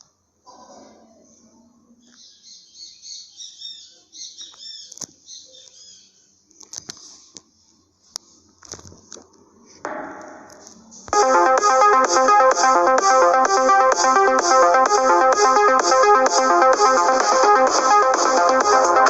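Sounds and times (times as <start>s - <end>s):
loud electronic music: 9.9s - 19.0s.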